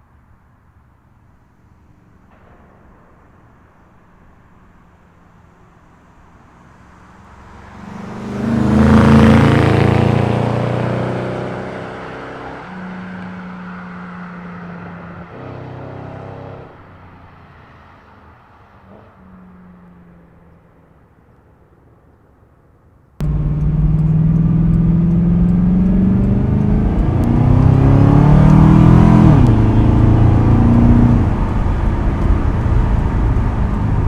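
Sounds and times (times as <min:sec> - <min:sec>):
car engine driving past: 0:06.6 - 0:12.6, 0:23.2 - 0:34.0.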